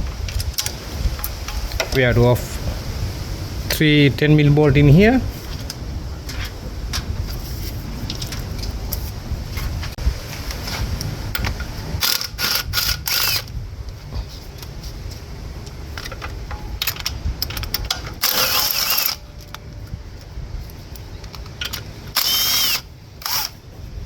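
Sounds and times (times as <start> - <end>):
ratchet wrench clicking: 12.0 - 13.5, 16.8 - 19.6, 21.6 - 23.6.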